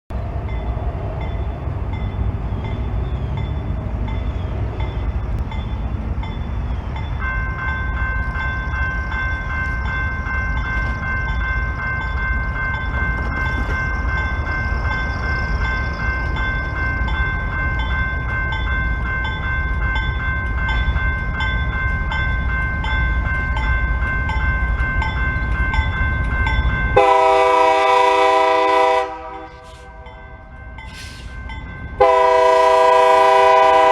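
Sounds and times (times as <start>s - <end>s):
railroad crossing bell ringing: 0.1s - 33.9s
locomotive air horn: 27.0s - 30.2s, 32.0s - 33.9s.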